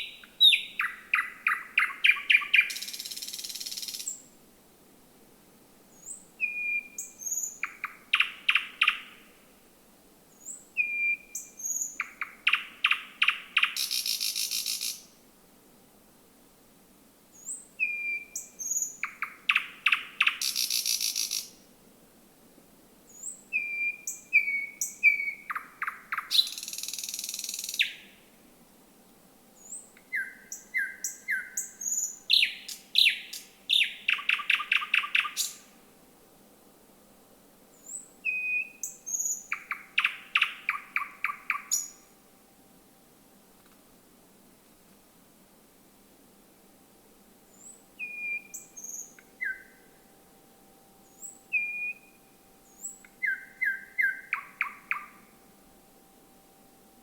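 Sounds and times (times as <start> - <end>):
nightingale singing: 0.0 - 4.3, 5.9 - 9.4, 10.3 - 15.2, 17.3 - 21.7, 23.1 - 28.3, 29.6 - 35.8, 37.7 - 42.2, 47.5 - 57.0.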